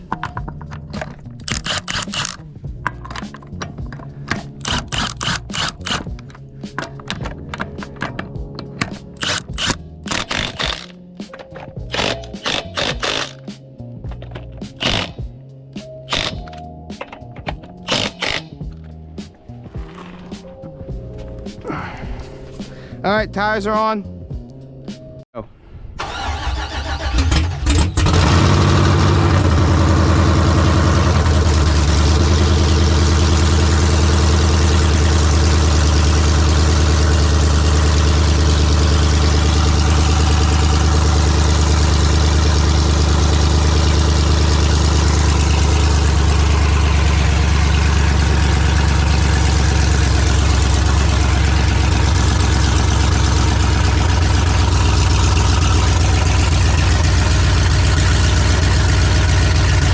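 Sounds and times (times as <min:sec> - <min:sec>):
engine idling: 0:26.0 - 0:59.9.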